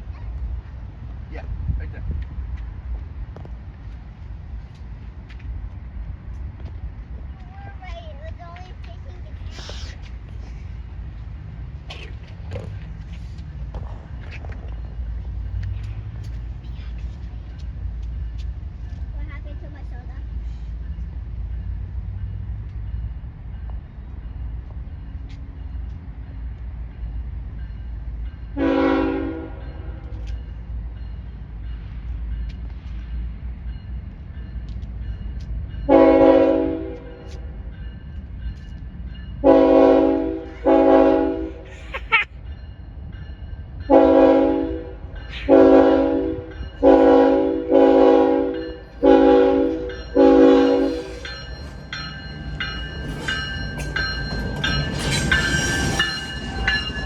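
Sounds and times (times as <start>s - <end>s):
locomotive air horn blasts: 28.6s - 30.0s, 35.9s - 37.2s, 39.4s - 41.6s, 43.9s - 51.2s.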